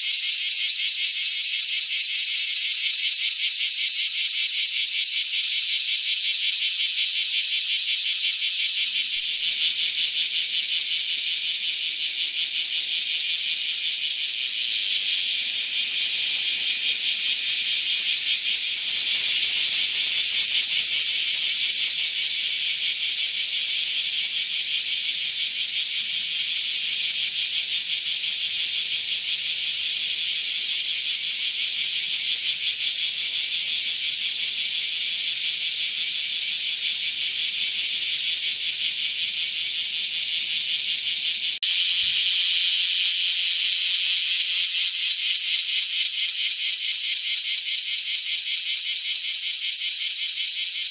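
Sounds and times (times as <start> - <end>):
cicada buzzing: 0.0 - 50.9.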